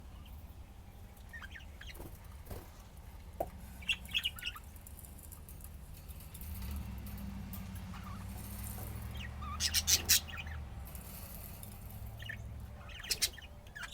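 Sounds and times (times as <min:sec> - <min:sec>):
budgerigars chirping: 0:01.0 - 0:02.1, 0:03.8 - 0:04.8, 0:07.8 - 0:13.9.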